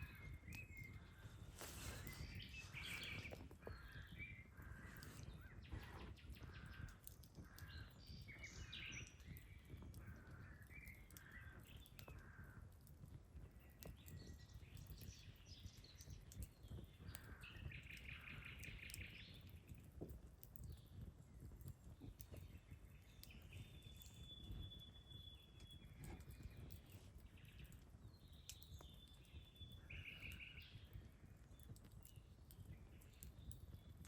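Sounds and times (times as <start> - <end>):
birds calling: 0.0 - 12.6
campfire crackles: 0.0 - 34.0.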